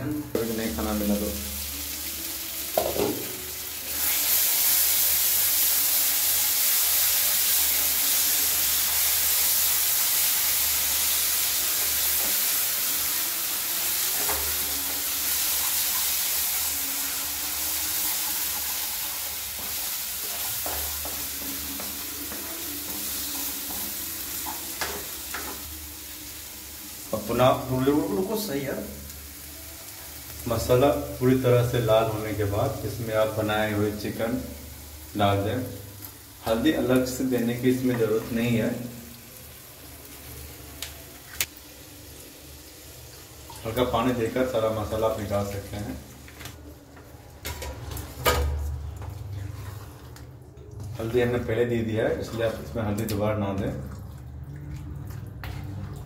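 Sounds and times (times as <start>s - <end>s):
paste sizzling in a pan: 0.8s - 46.5s.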